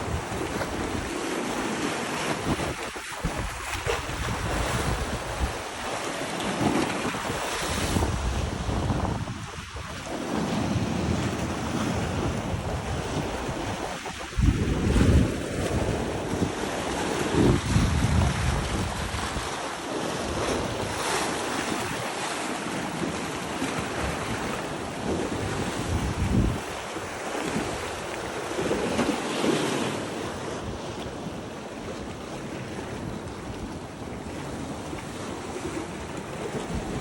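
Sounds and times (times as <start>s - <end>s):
wind buffeting microphone: 0.0s - 22.1s, 23.0s - 29.0s
ocean waves breaking: 0.0s - 37.0s.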